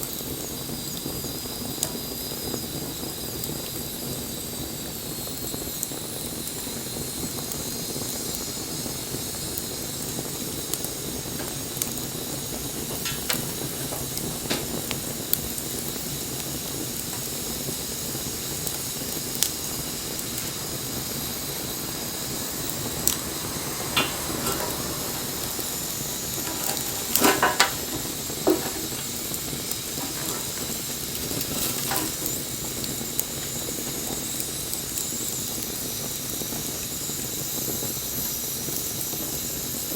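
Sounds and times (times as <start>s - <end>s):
wood fire hissing and crackling: 0.0s - 39.9s
loud pops from fire: 5.1s - 37.1s.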